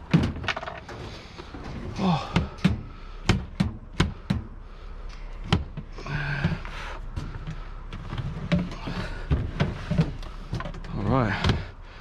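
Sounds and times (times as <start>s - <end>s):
bulky object knocking and clunking: 2.2s - 4.6s, 5.4s - 7.6s.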